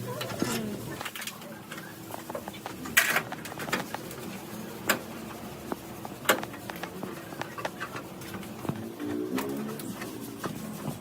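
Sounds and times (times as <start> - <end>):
sharp clicks and knocks: 0.2 - 11.0.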